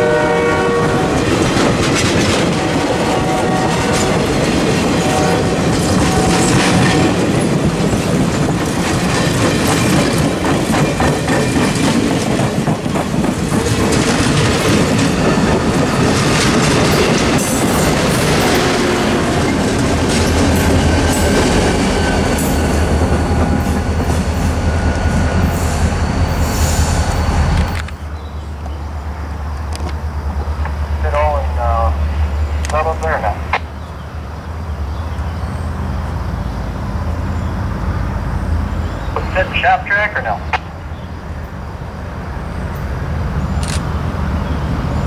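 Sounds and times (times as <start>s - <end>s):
locomotive engine drone: 0.0s - 45.0s
train wheels clacking on rails: 1.0s - 28.0s.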